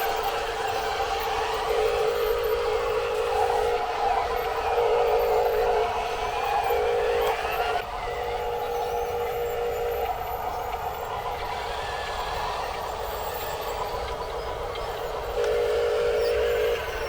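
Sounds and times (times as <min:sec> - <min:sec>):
toy truck motor whine: 0:00.0 - 0:17.0.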